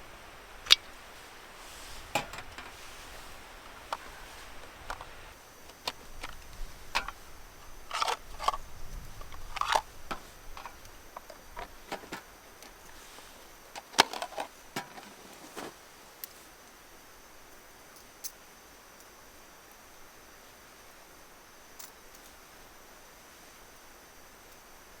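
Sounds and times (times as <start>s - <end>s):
small objects clicking and rustling: 1.9s - 13.0s, 13.7s - 16.4s.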